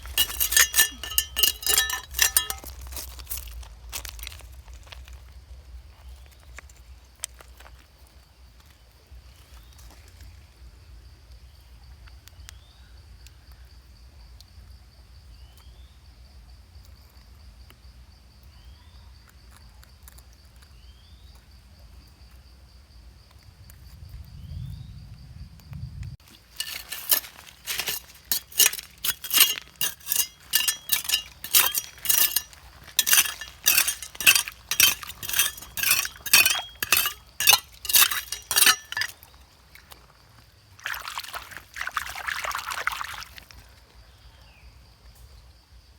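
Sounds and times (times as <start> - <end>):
stones clinking together: 0.0 - 4.4, 26.3 - 39.3.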